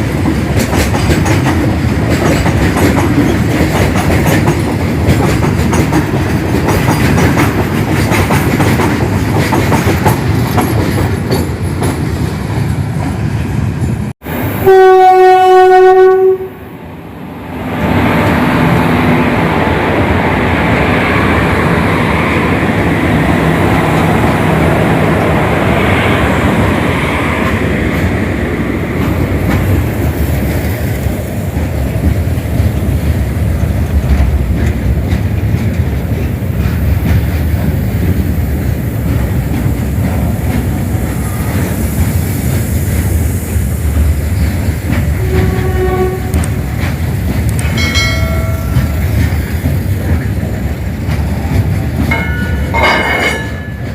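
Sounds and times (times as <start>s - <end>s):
train wagons rumbling on rails: 0.0s - 53.9s
train horn: 14.6s - 16.7s, 45.1s - 46.7s.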